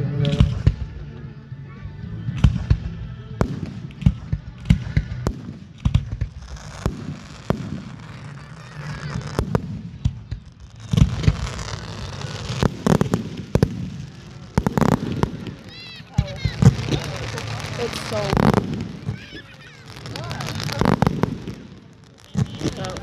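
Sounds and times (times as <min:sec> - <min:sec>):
fireworks bangs and pops: 0:02.2 - 0:23.0
fireworks crackling hiss: 0:02.2 - 0:23.0.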